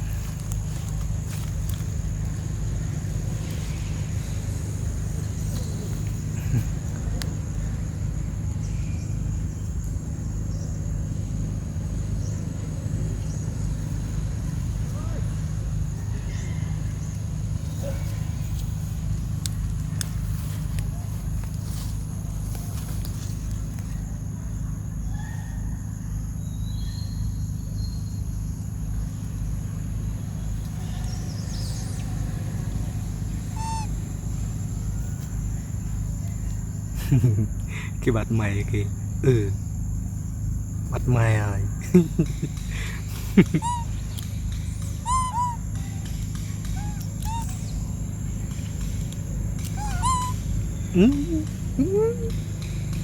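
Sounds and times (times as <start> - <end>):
high-pitched insect drone: 26.4 - 53.0
faint chirps and whistles: 33.5 - 34.0, 43.6 - 48.0, 49.6 - 52.4
sharp animal call: 33.5 - 34.0, 43.4 - 44.0, 45.0 - 45.8, 46.6 - 47.8, 49.6 - 52.4.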